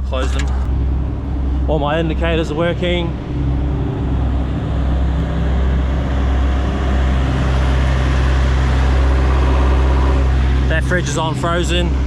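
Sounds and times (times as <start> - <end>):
air system building pressure: 0.0 - 12.0
diesel truck engine idling: 0.0 - 12.0.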